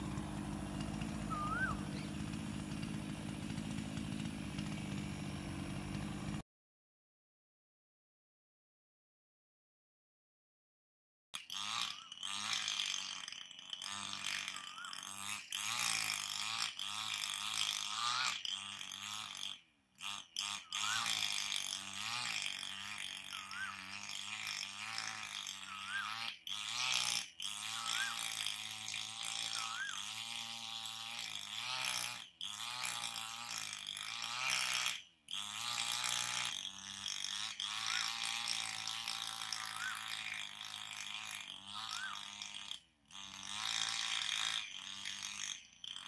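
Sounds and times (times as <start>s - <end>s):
birds whistling: 1.2s - 2.2s.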